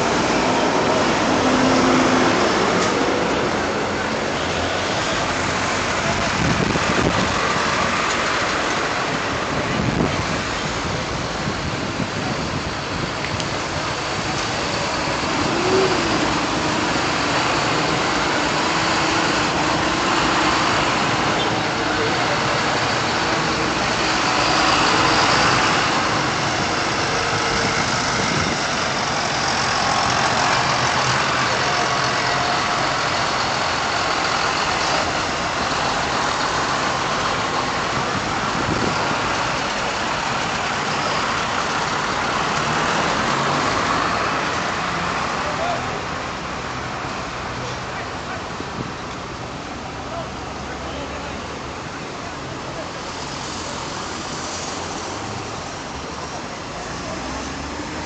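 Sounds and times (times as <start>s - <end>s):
tractor engines idling: 0.0s - 58.0s.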